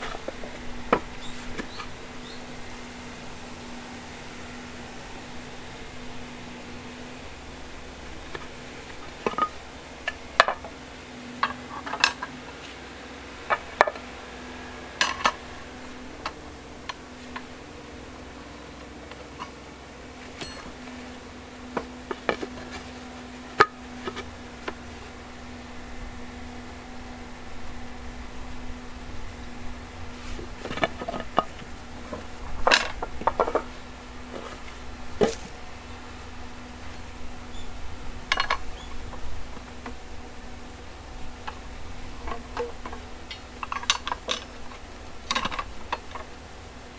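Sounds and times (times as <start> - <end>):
steady low hum: 0.0 - 46.9
metallic clinks and clanks: 20.3 - 21.0
steel rebar clanking: 20.3 - 22.9.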